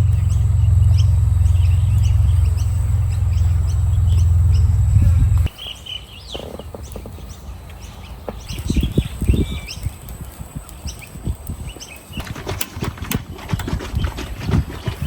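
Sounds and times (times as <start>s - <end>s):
low thuds: 0.0s - 5.5s
birds chirping: 0.0s - 15.0s.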